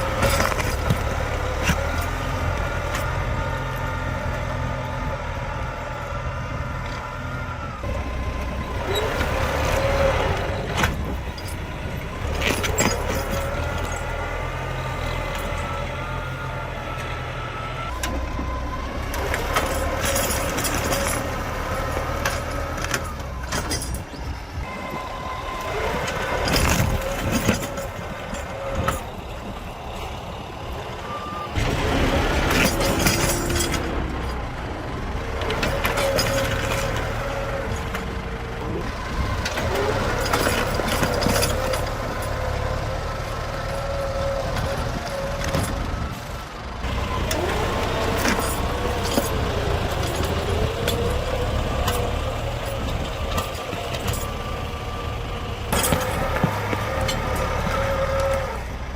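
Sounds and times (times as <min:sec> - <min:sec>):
tractor engine under load: 0:00.0 - 0:58.9
knocks and clanks: 0:08.8 - 0:14.4, 0:25.7 - 0:29.6, 0:31.5 - 0:34.5, 0:38.8 - 0:42.8, 0:46.8 - 0:54.5, 0:55.7 - 0:58.5.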